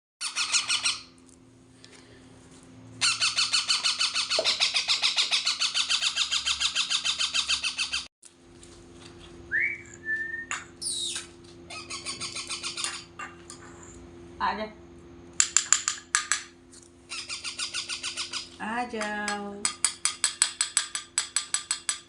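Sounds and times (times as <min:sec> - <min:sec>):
parrot calling: 0:00.2 - 0:01.2, 0:03.0 - 0:08.1, 0:09.5 - 0:13.4, 0:17.1 - 0:18.6
parrot whistle: 0:09.5 - 0:13.1.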